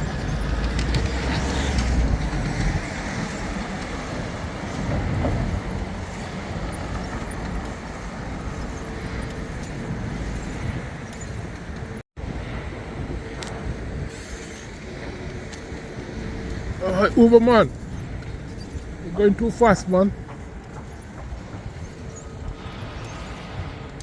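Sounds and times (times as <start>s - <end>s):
vehicle passing with deep rumble: 0.0s - 14.0s
city road traffic: 0.0s - 24.0s.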